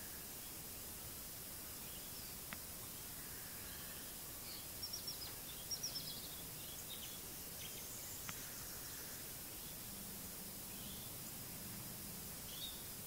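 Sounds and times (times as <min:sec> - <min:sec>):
faint background hiss: 0:00.0 - 0:13.0
birds chirping: 0:01.7 - 0:13.0
faint click: 0:02.4 - 0:02.7, 0:08.2 - 0:08.5.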